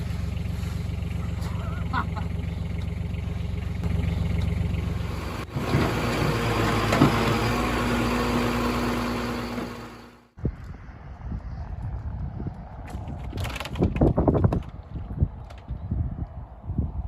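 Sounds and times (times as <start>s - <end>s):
engine knocks: 0.0s - 7.8s
loud noisy engine humming: 0.0s - 10.3s
engine running steadily: 0.0s - 10.4s.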